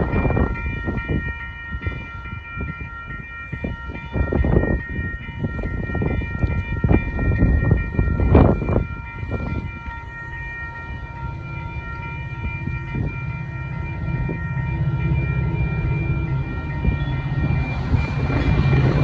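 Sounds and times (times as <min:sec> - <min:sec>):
train high whine: 0:00.0 - 0:19.0
low rumble: 0:11.4 - 0:19.0.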